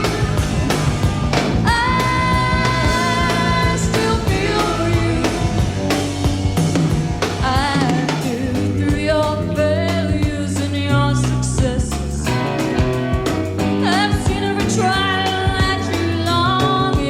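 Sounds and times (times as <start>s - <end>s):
person singing lead vocal: 0.0s - 0.6s, 1.6s - 5.7s, 7.4s - 12.4s
drum kit: 0.0s - 17.0s
electric bass: 0.0s - 17.0s.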